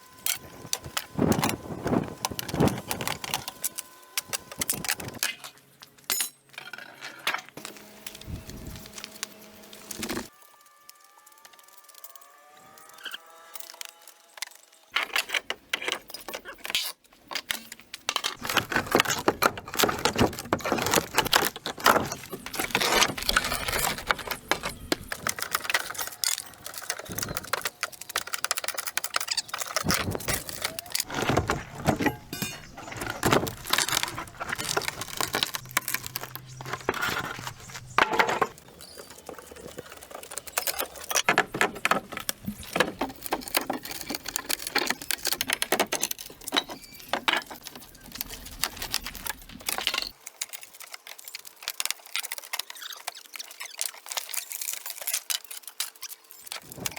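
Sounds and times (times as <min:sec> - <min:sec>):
hard objects clattering and knocking: 0:18.1 - 0:50.1.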